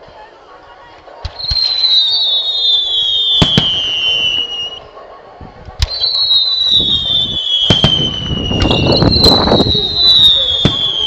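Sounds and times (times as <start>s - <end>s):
falling firework whistle: 1.3s - 4.8s, 5.8s - 11.0s
firework shells bursting: 7.5s - 11.0s.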